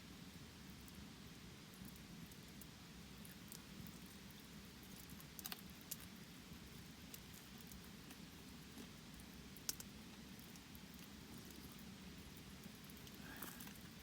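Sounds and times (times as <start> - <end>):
faint sharp clicks: 9.6 - 9.9.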